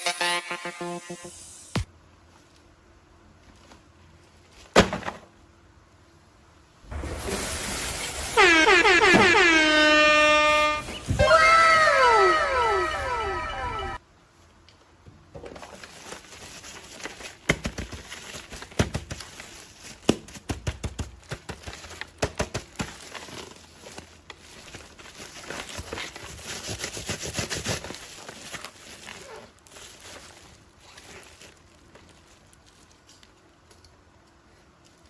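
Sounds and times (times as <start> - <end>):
repeated falling tones: 8.5 - 14.0
plastic packaging crinkling: 15.6 - 20.4, 21.2 - 33.6.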